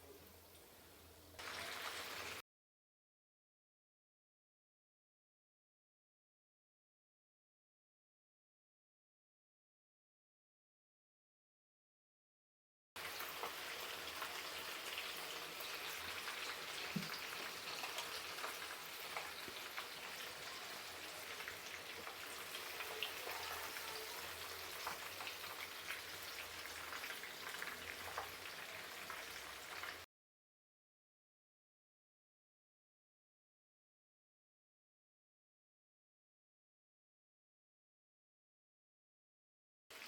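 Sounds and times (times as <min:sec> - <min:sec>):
food frying in hot oil: 0:00.0 - 0:02.4, 0:13.0 - 0:30.1.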